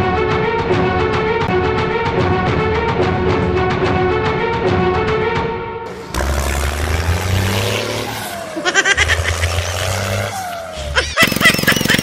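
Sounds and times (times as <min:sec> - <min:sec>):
tractor engine humming: 0:05.9 - 0:12.0.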